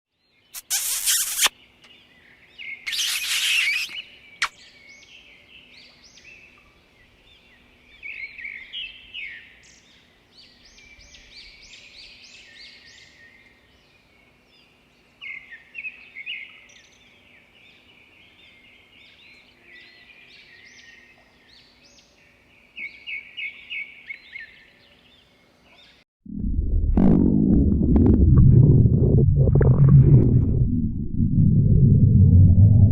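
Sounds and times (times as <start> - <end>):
small birds chirping: 0.3 - 26.0
short rushing noise: 26.3 - 32.9.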